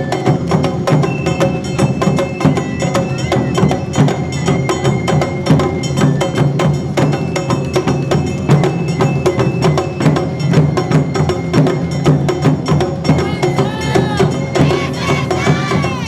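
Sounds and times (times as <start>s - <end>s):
drums: 0.0s - 16.0s
dancers shouting: 13.2s - 16.0s.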